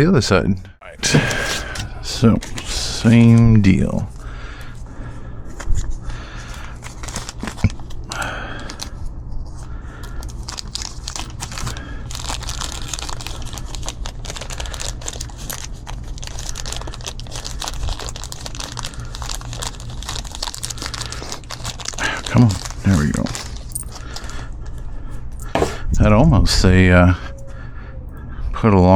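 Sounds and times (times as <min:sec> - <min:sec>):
steady low hum: 0:00.0 - 0:28.9
hands handling tools rustling: 0:22.6 - 0:26.0.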